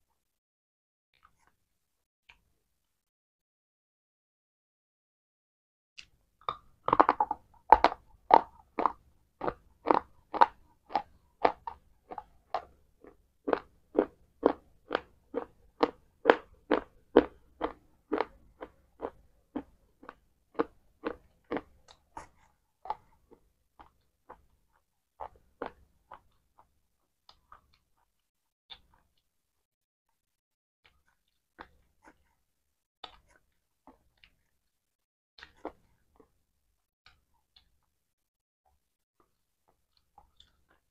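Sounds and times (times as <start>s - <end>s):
person chewing crunchy food: 6.4s - 29.3s, 30.8s - 32.4s, 33.0s - 34.8s, 35.4s - 36.4s, 39.2s - 40.9s.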